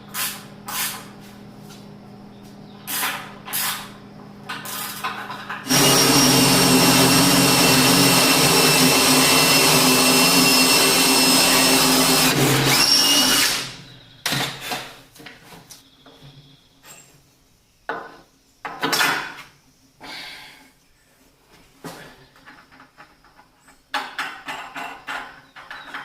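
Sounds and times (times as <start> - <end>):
electric power tool running: 5.6 - 13.8
wood and tools knocking: 22.4 - 26.0.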